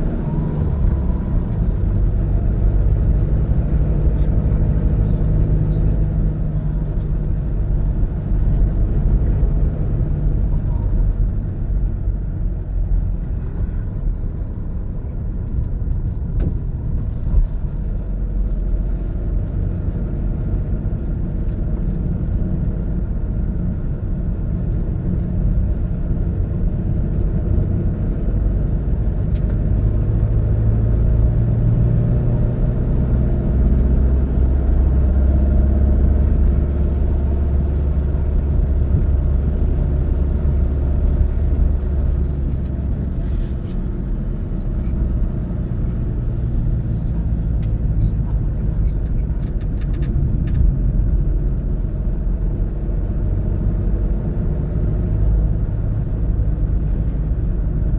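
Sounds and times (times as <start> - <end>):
car engine and tyre rumble: 0.0 - 57.9.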